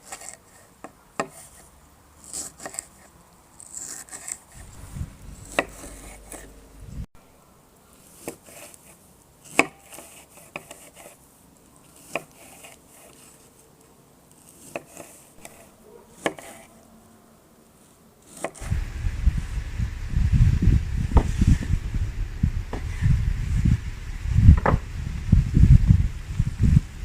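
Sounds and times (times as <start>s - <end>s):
loud low rumble: 4.6s - 7.1s, 18.6s - 27.0s
knife chopping on wooden board: 5.4s - 6.5s.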